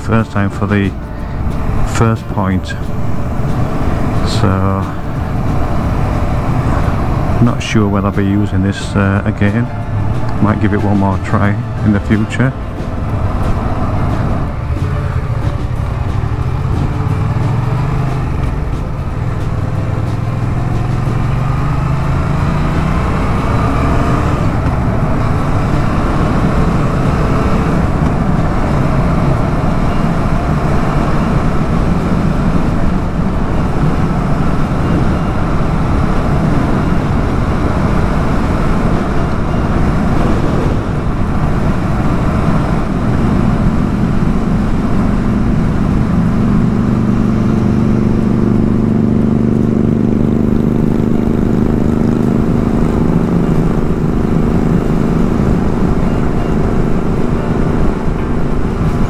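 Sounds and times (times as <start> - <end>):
motorcycle engine pulling: 0.1 - 59.0
wind noise on microphone: 22.2 - 59.0.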